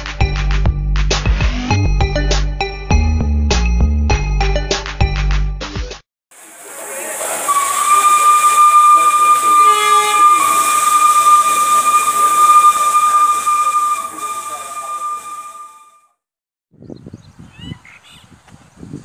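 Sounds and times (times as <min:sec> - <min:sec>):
air hissing: 0:06.4 - 0:15.6
train horn blast: 0:06.6 - 0:16.0.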